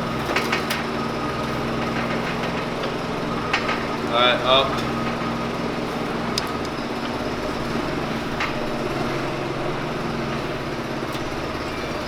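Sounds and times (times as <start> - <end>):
forklift engine running: 0.0 - 12.0.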